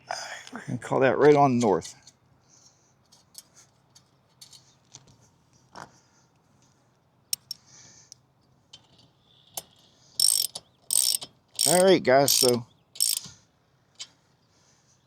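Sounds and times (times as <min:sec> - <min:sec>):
metallic clicks: 0:07.4 - 0:07.6, 0:09.6 - 0:13.3.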